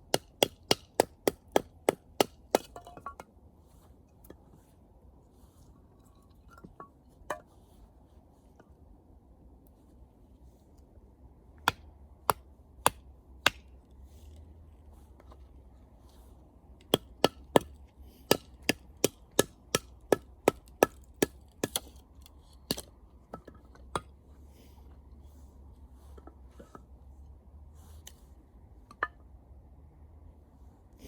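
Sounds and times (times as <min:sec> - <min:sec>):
wood being chopped: 0:00.1 - 0:03.2, 0:11.6 - 0:13.7, 0:16.8 - 0:22.0.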